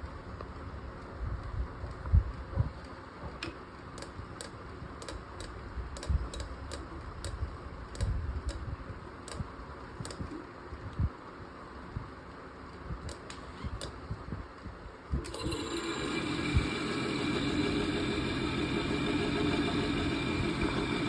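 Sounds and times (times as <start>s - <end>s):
low hum: 15.2s - 21.0s.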